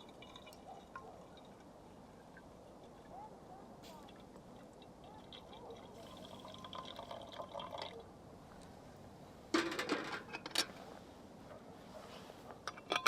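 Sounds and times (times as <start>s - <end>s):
liquid pouring into cup: 4.6s - 8.0s
clatter of handling: 9.5s - 10.8s, 12.0s - 13.0s.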